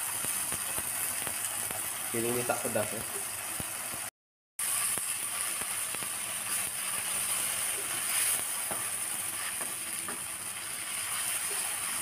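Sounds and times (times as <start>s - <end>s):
paste sizzling in hot oil: 0.0s - 12.0s
wooden spatula scraping: 6.5s - 10.2s
spatula knocking on a pan: 8.6s - 8.9s.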